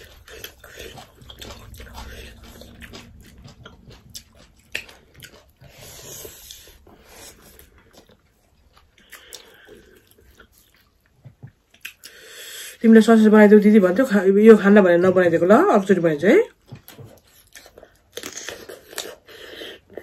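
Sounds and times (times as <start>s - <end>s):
chewing and lip smacks: 0.0s - 12.2s, 16.6s - 20.0s.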